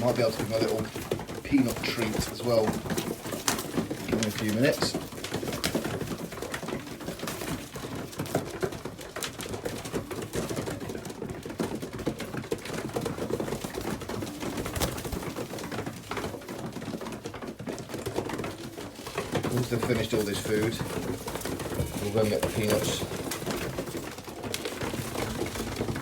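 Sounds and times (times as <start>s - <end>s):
pigeons cooing: 0.0s - 26.0s
beaks clicking on grain: 21.8s - 23.3s.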